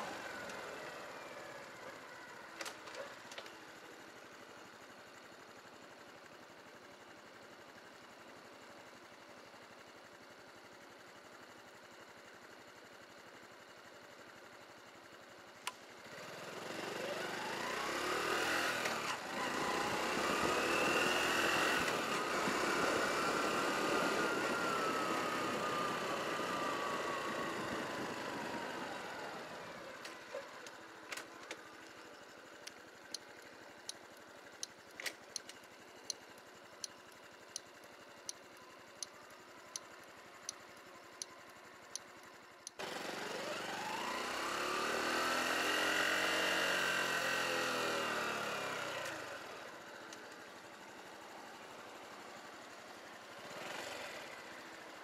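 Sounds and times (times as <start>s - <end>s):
motorcycle engine pulling away: 16.0s - 33.1s, 42.8s - 55.0s
light ticking: 30.6s - 42.8s.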